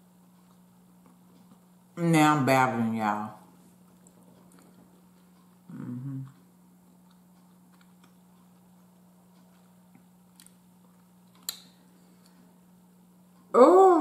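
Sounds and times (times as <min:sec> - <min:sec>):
steady low hum: 0:00.0 - 0:14.0
person chewing food: 0:00.2 - 0:01.8, 0:03.7 - 0:12.5.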